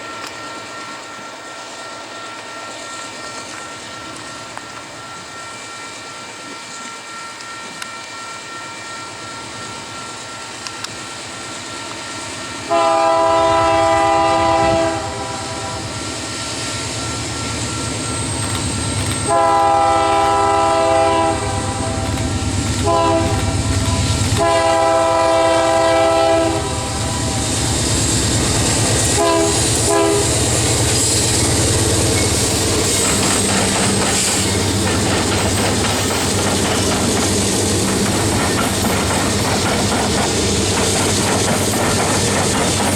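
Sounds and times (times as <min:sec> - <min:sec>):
freight train rumble: 0:00.0 - 0:42.9
locomotive chord horn: 0:12.7 - 0:16.0, 0:19.2 - 0:27.5, 0:29.0 - 0:30.8
wheels clickety-clack: 0:17.4 - 0:25.2, 0:30.3 - 0:42.9.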